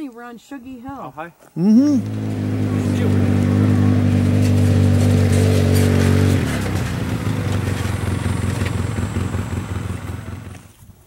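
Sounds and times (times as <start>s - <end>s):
atv engine running: 1.9s - 11.0s.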